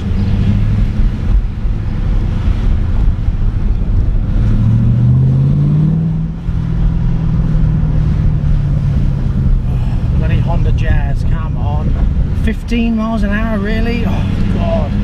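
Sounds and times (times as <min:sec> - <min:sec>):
car engine running: 0:00.0 - 0:15.0
road rumble: 0:00.0 - 0:15.0.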